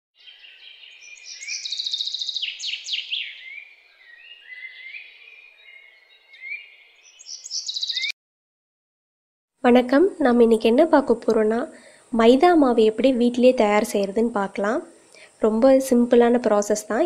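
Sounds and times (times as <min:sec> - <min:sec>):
birds singing and calling: 0:00.2 - 0:08.2
faint background hiss: 0:09.6 - 0:17.0.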